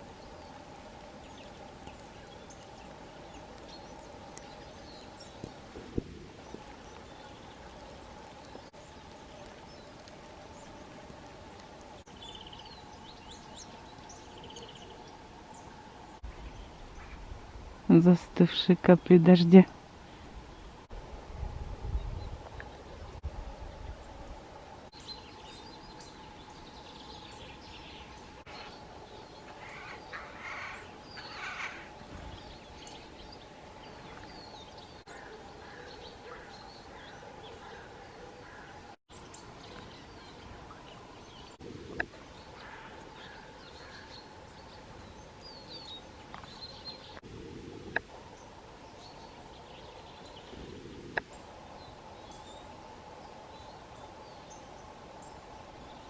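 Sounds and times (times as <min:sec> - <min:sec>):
steady outdoor hiss: 0:00.0 - 0:56.0
distant bird chirps: 0:25.0 - 0:47.2
harsh rasping bird calls: 0:28.5 - 0:33.1.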